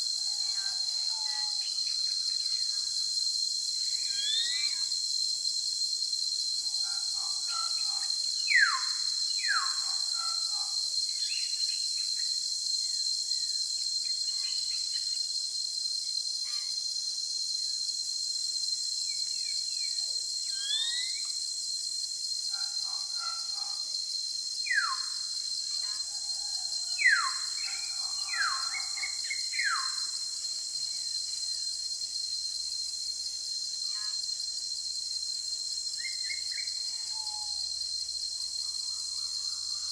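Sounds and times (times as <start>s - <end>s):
high-pitched insect drone: 3.8s - 5.2s, 19.0s - 21.4s, 24.6s - 39.9s.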